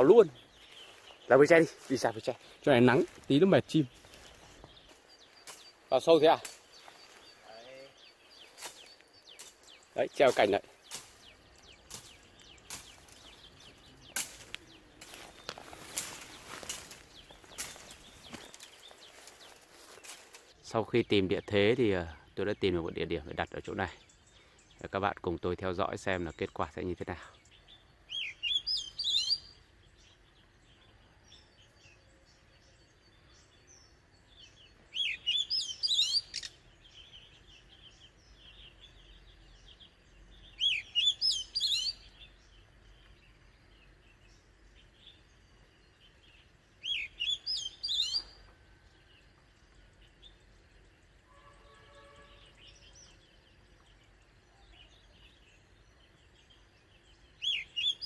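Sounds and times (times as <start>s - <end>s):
faint bird chirps: 0.0s - 58.0s
bird singing whistled notes: 27.4s - 58.0s.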